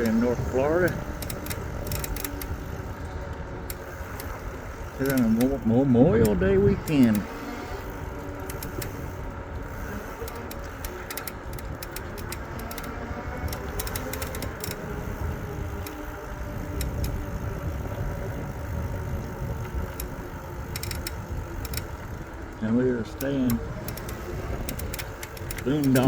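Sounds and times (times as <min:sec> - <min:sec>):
light rattling clicks: 0:00.0 - 0:15.0, 0:15.6 - 0:17.4, 0:19.0 - 0:26.0
e-bike riding rumble: 0:00.0 - 0:26.0.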